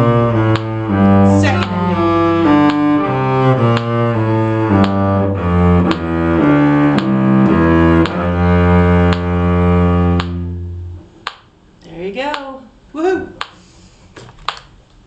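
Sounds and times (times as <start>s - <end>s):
cello bowed in slow notes: 0.0s - 11.1s.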